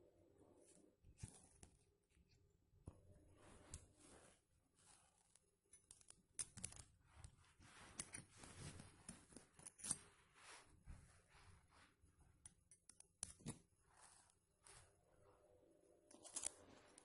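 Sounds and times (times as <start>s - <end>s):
screwdriver kit clicks and scrapes: 7.9s - 10.0s, 16.1s - 17.0s.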